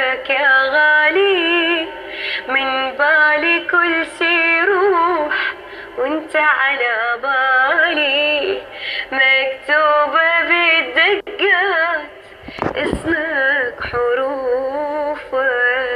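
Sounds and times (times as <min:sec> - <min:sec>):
woman singing ornamented notes: 0:00.0 - 0:05.3.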